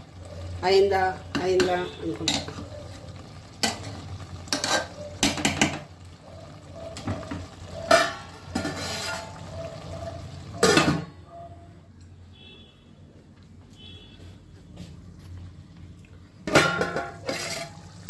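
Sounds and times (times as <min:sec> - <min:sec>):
metal spoon scraping a pot: 0:04.5 - 0:05.7, 0:07.8 - 0:09.4, 0:16.6 - 0:18.0.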